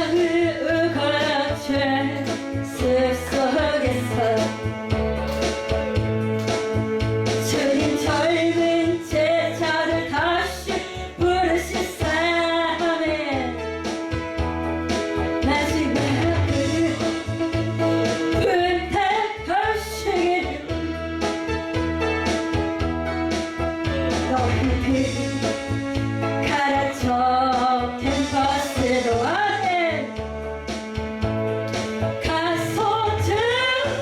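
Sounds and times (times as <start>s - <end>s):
guitar accompaniment: 0.0s - 34.0s.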